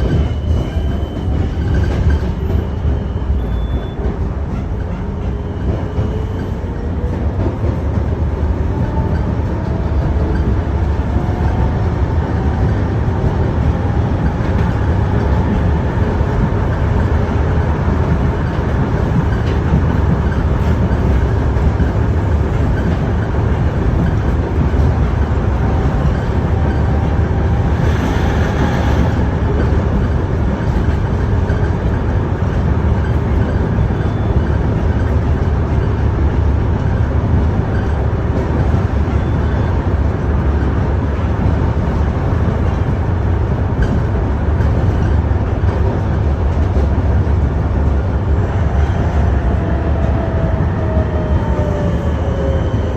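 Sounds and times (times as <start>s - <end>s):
tram wheels rumbling on rails: 0.0s - 52.9s.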